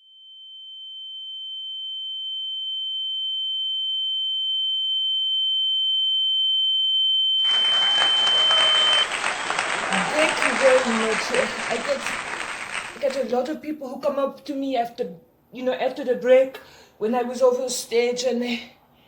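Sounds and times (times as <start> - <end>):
applause and crowd noise: 7.5 - 13.4.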